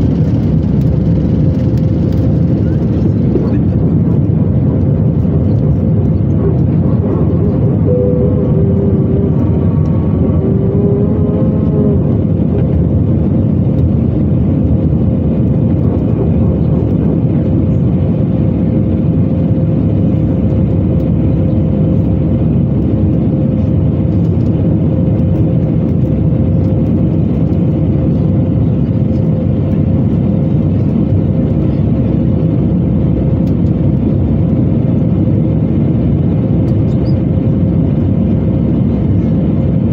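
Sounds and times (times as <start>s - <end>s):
jet engine and airflow rumble: 0.0s - 39.9s
steady whine: 0.0s - 39.9s.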